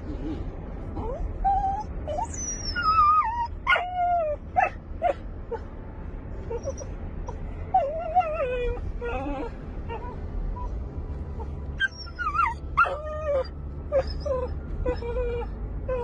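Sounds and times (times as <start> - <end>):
dog whining: 0.1 - 5.7, 6.5 - 10.7, 11.4 - 16.0
dog yelping: 1.0 - 5.2, 11.8 - 16.0.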